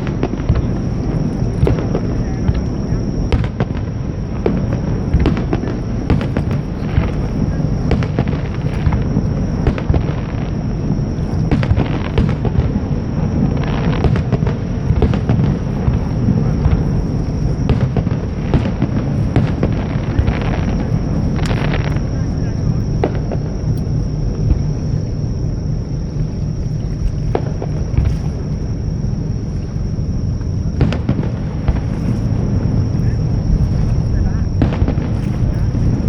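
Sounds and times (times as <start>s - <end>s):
deep rumble: 0.0s - 36.0s
fireworks bangs and crackles: 0.0s - 36.0s.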